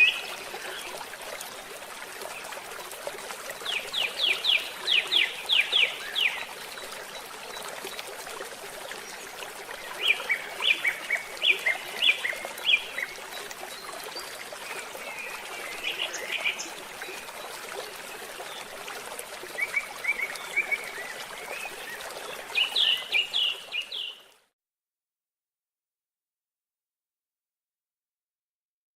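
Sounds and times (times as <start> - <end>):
stream trickling: 0.0 - 24.5
birds singing: 19.6 - 24.2.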